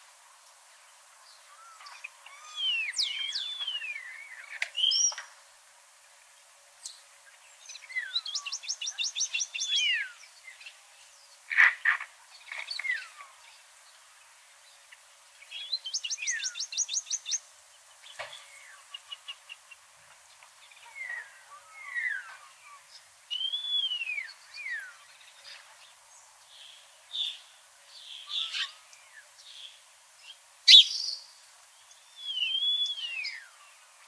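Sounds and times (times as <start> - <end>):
songbirds singing: 0.5 - 34.0
bird trills: 28.2 - 28.8, 30.7 - 31.2
sharp bird chirp: 30.7 - 31.2.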